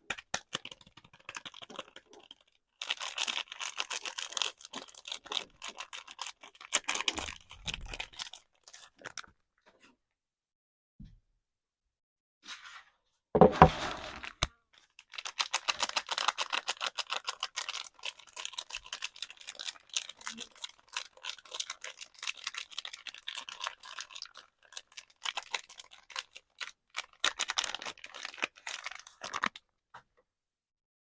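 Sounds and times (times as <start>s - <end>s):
packaging crackling: 15.1s - 29.6s.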